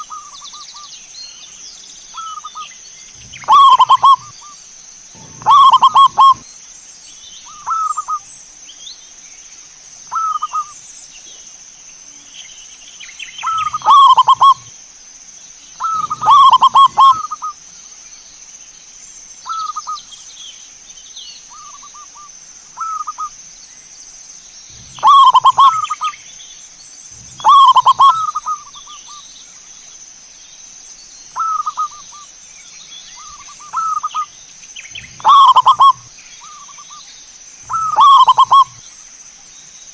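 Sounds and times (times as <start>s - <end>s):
doves cooing: 2.2s - 6.4s, 13.4s - 14.7s, 15.8s - 17.6s, 24.7s - 26.2s, 27.1s - 28.8s, 33.2s - 34.3s, 34.9s - 36.9s, 37.7s - 38.8s.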